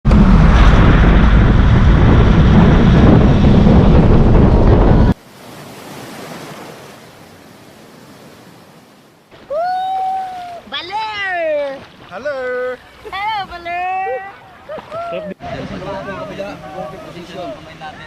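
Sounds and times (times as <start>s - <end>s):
wind buffeting microphone: 0.0s - 5.2s
ocean surf: 0.1s - 18.0s.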